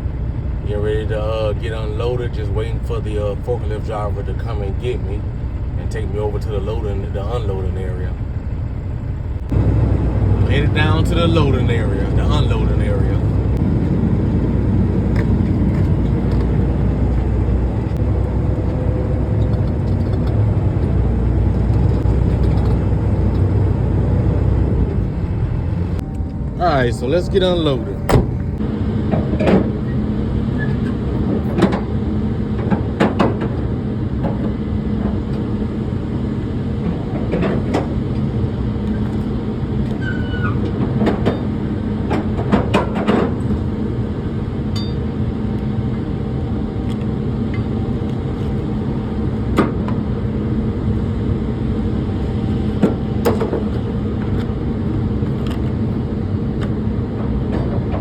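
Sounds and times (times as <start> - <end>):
engine idling: 0.0 - 58.0
knocks and clunks: 27.9 - 29.9, 57.2 - 58.0.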